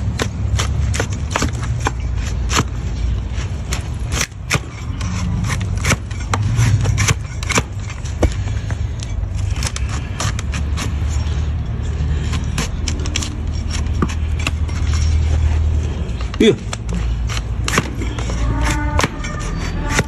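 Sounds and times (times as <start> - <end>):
knife scraping hoof: 0.0 - 20.0.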